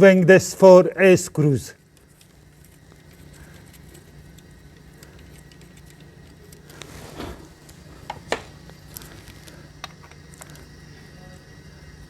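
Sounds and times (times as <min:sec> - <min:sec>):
steady low hum: 0:00.0 - 0:12.0
metal scrape: 0:06.7 - 0:07.8.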